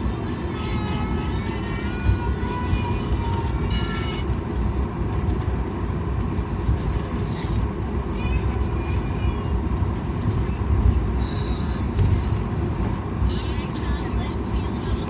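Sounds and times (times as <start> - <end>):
airplane cabin rumble: 0.0 - 15.0
faint voices: 13.0 - 15.0.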